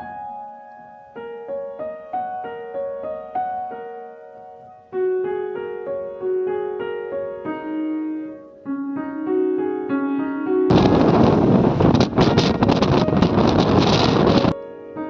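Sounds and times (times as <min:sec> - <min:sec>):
slow solo piano melody: 0:00.0 - 0:15.0
wind buffeting microphone: 0:10.7 - 0:14.6.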